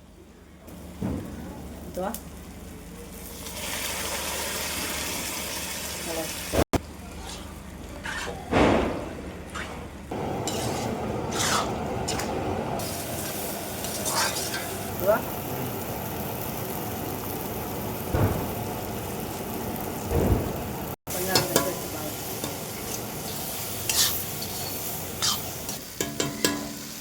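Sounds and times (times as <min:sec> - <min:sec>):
spatula scraping a pan: 0:07.1 - 0:08.5, 0:10.4 - 0:12.3, 0:13.8 - 0:14.8, 0:22.9 - 0:26.7
meat sizzling in a pan: 0:10.2 - 0:27.0.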